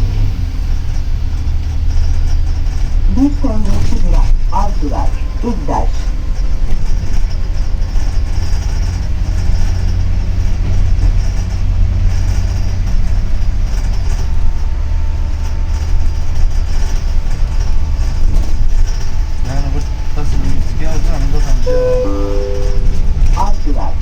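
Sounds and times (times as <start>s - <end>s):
bus engine and road rumble: 0.0s - 24.0s
faint steady whine: 15.4s - 24.0s.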